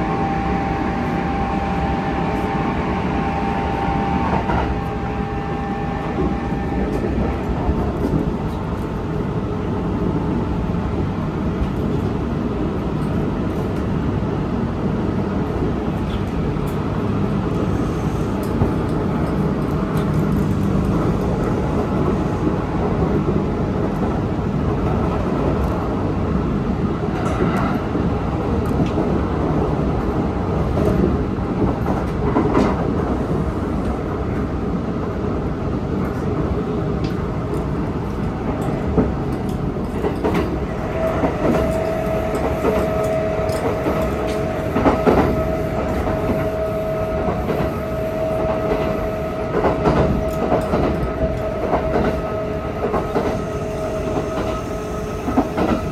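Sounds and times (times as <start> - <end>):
steady whining tone: 0.0 - 8.3
electric train wheels rumbling: 0.0 - 55.9.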